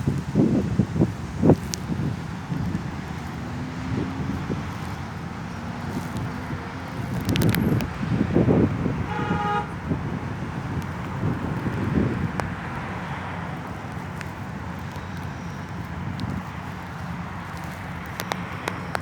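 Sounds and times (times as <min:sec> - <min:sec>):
street traffic: 0:00.0 - 0:19.0
wind rumbling on microphone: 0:00.0 - 0:19.0
car horn toot: 0:08.9 - 0:10.0.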